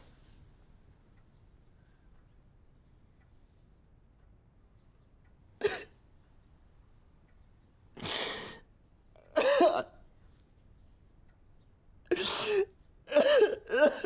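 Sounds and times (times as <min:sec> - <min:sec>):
person coughing: 0:05.6 - 0:06.0, 0:09.2 - 0:10.0, 0:12.1 - 0:14.0.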